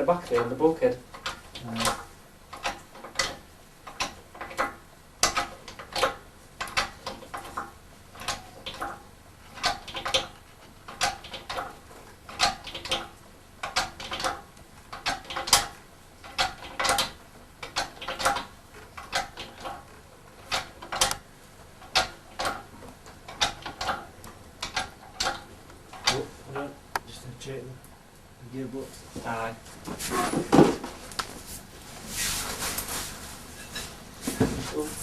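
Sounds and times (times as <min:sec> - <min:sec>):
metallic clicks and knocks: 0:00.0 - 0:21.2, 0:21.8 - 0:27.1.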